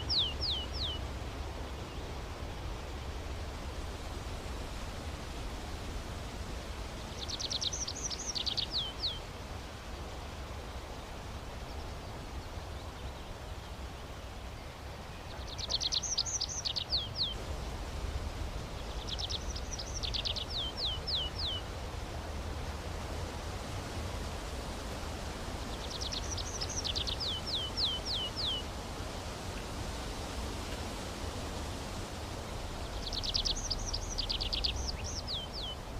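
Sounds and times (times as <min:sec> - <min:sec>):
songbird singing: 0:00.0 - 0:03.6, 0:06.8 - 0:17.4, 0:18.4 - 0:21.7, 0:24.6 - 0:28.8, 0:32.0 - 0:35.9
steady outdoor hiss: 0:00.0 - 0:35.9.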